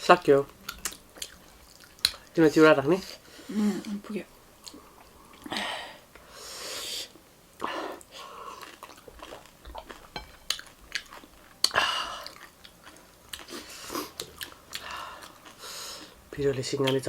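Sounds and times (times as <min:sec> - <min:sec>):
food crunching while chewed: 0:00.6 - 0:02.4, 0:08.0 - 0:16.2
wet mouth noises: 0:08.0 - 0:15.6.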